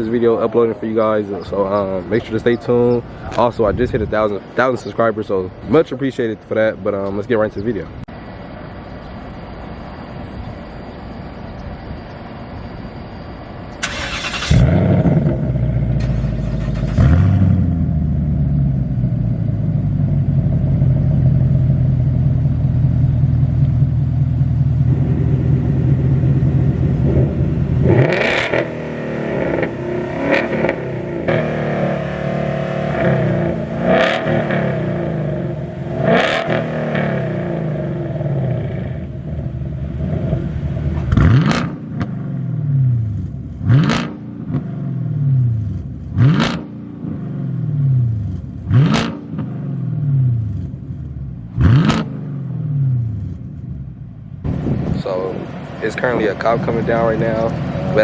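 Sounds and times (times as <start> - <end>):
car engine revving and idling: 13.8 - 58.0.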